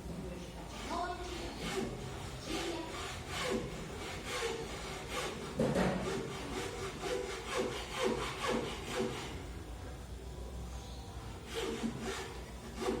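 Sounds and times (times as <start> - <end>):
rasping strokes on wood: 0.8 - 9.4, 11.4 - 13.0.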